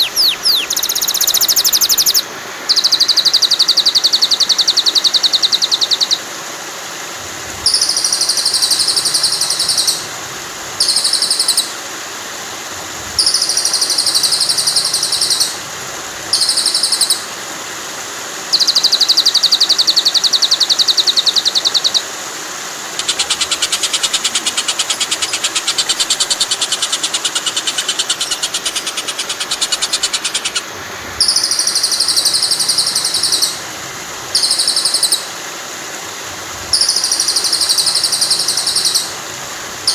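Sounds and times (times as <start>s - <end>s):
songbird fast high trills: 0.0s - 6.2s
flowing water rushing: 0.0s - 39.9s.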